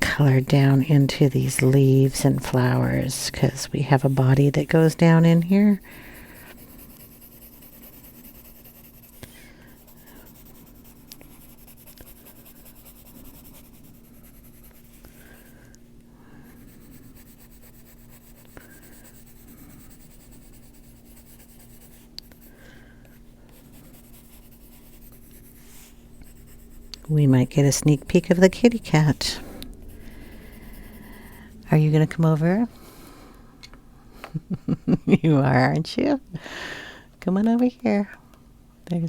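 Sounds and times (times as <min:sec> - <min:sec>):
pencil scratching on paper: 0:00.0 - 0:15.5, 0:16.5 - 0:22.6, 0:23.5 - 0:32.6
faint steady hum: 0:00.0 - 0:39.0.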